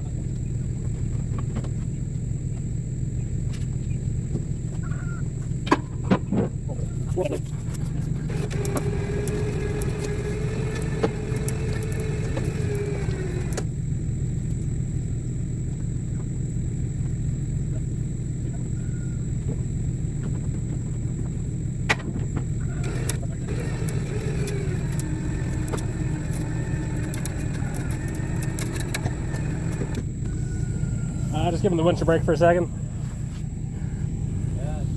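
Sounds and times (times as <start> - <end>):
engine rumble: 0.0 - 34.9
electric winch motor whining: 8.2 - 13.7, 22.6 - 32.7.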